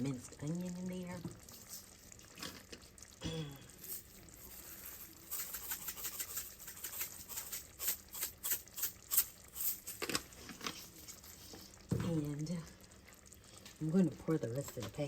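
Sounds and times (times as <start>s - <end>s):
spice jar rattling: 4.8s - 10.0s.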